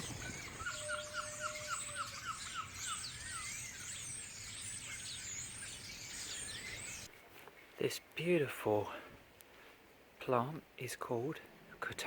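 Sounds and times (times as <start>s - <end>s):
birds singing and chirping: 0.0s - 7.8s.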